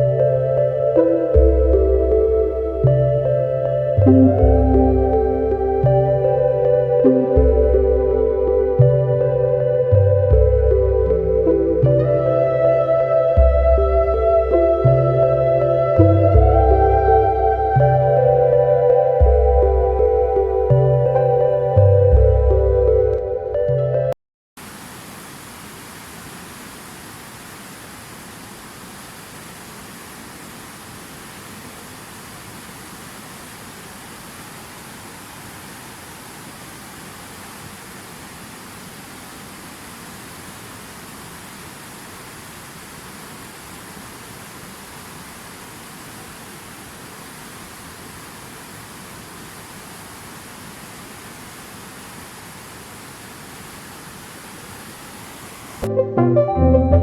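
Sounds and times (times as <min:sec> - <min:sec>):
waterfall rushing: 0:24.6 - 0:55.9.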